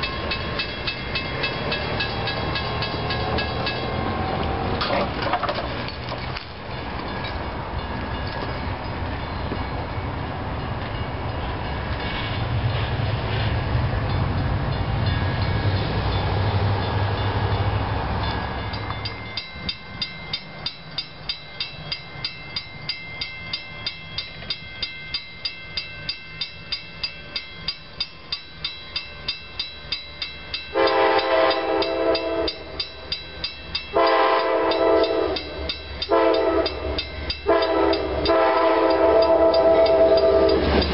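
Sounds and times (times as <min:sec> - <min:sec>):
railroad crossing bell ringing: 0:00.0 - 0:05.0, 0:05.8 - 0:12.0, 0:14.0 - 0:40.9
train rumbling past: 0:00.0 - 0:40.9
train horn blasts: 0:30.7 - 0:32.8, 0:33.9 - 0:40.7.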